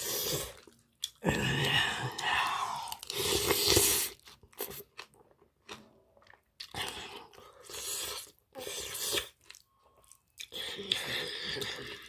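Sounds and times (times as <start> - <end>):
chewing with wet mouth clicks: 0.6 - 1.2.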